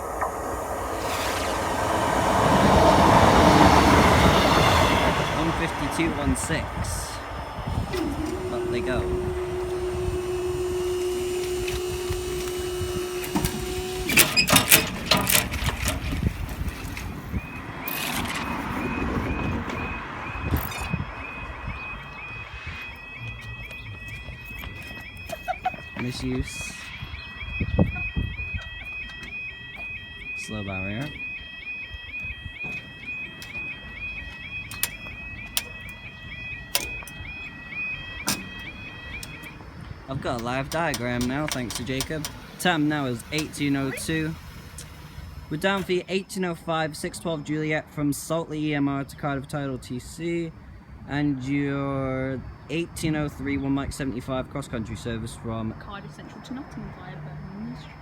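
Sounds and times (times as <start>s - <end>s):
barrier mechanism humming: 0.0s - 3.7s, 5.2s - 26.4s
two-tone warble alarm: 0.0s - 54.2s, 55.6s - 58.0s
sharp clicks: 40.3s - 43.7s.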